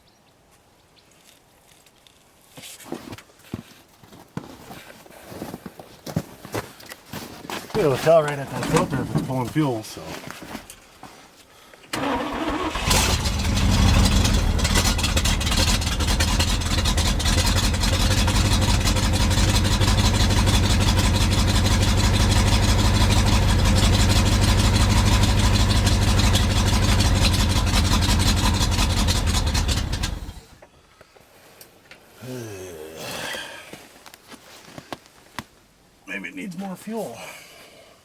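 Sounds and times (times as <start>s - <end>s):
starter cranking truck engine: 11.9s - 30.6s.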